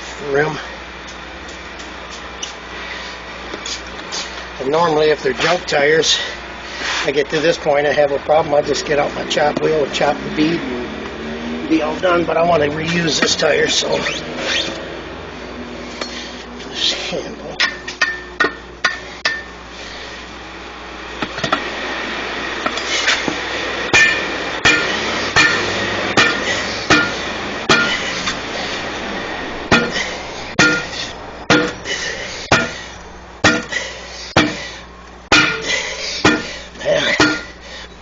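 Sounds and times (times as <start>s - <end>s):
hammer striking steel tools: 17.6s - 19.5s, 23.9s - 28.4s, 29.7s - 32.8s, 33.4s - 34.7s, 35.3s - 36.5s, 37.1s - 37.6s.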